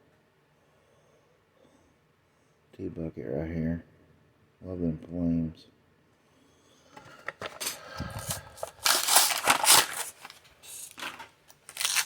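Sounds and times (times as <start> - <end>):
blister pack crinkling and crackling: 7.3 - 12.0.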